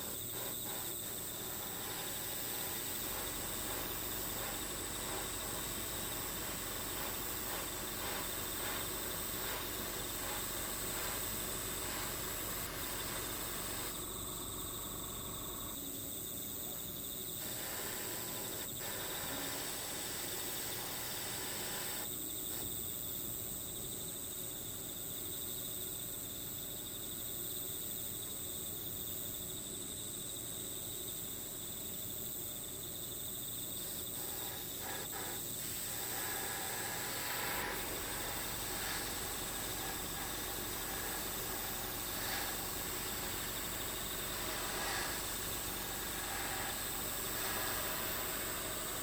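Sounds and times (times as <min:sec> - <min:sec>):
insects chirring: 0:00.0 - 0:49.0.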